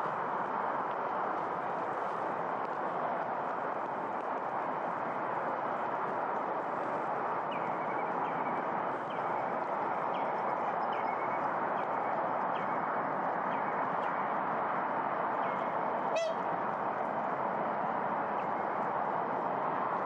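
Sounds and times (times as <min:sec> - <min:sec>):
steady rushing background noise: 0:00.0 - 0:20.0
bird calling: 0:16.2 - 0:16.4.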